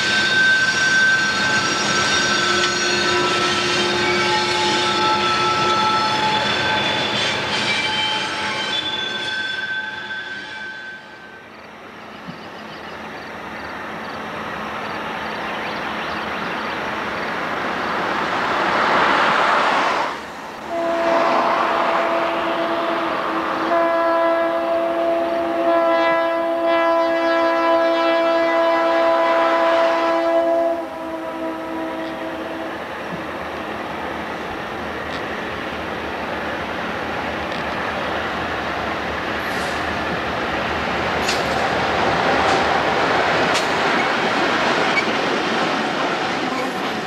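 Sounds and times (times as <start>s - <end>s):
steel wheels squealing: 0.0s - 11.7s, 44.8s - 45.2s
locomotive air horn blast: 0.1s - 11.2s, 20.6s - 32.8s
diesel locomotive rumble: 28.6s - 47.0s
hopper cars rolling past: 32.8s - 47.0s.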